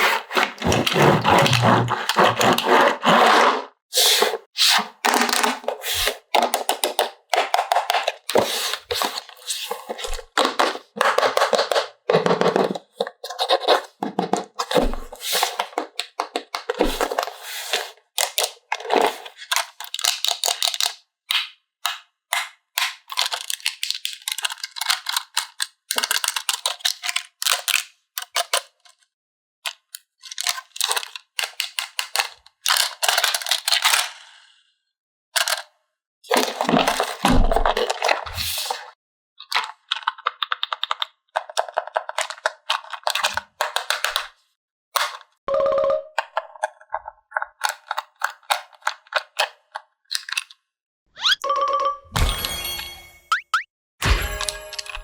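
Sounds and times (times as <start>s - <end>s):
plastic packaging crackling and snapping: 18.2s - 21.4s, 22.8s - 29.0s, 29.9s - 34.0s, 39.5s - 44.3s.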